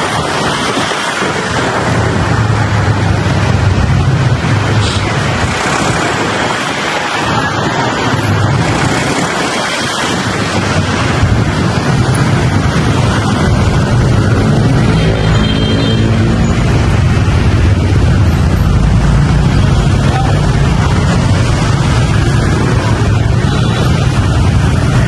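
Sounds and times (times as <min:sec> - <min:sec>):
wind buffeting microphone: 0:00.0 - 0:25.0
motorbike engine humming: 0:10.6 - 0:25.0.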